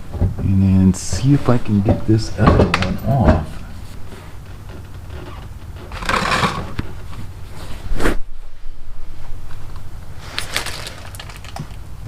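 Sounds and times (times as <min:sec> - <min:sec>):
steady low hum: 0:00.0 - 0:12.0
tool scraping: 0:00.9 - 0:08.2.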